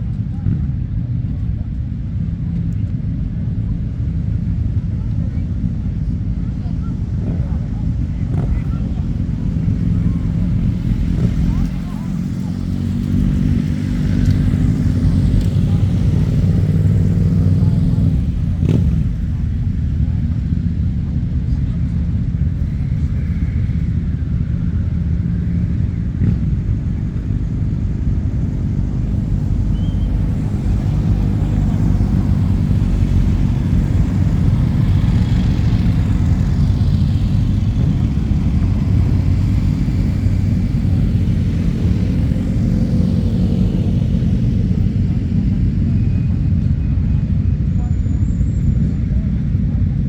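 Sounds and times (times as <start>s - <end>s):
motorcycle engines rumbling: 0.0s - 50.0s
motorcycle passing by: 8.2s - 46.5s.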